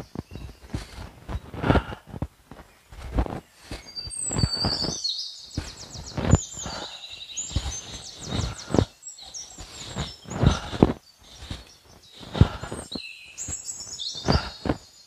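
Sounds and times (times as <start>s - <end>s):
bird chirping and trilling: 3.6s - 15.0s.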